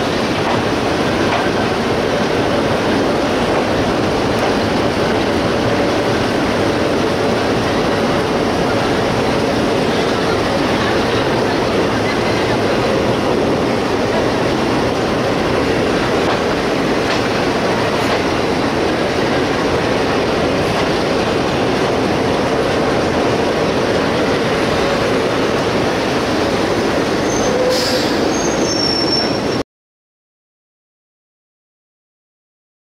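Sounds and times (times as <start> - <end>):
train wheels on rail: 0.0 - 29.6
high-pitched wheel squeals: 27.2 - 29.6.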